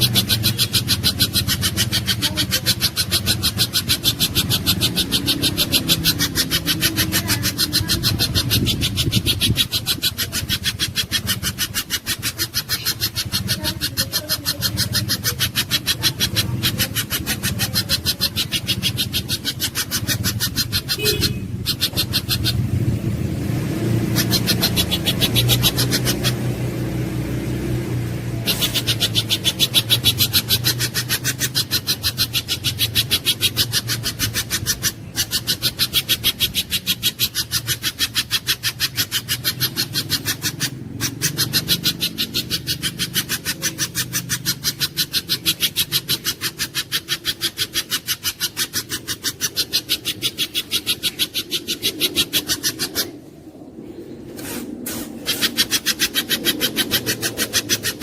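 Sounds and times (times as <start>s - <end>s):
bird harsh rasping call: 0.0s - 58.0s.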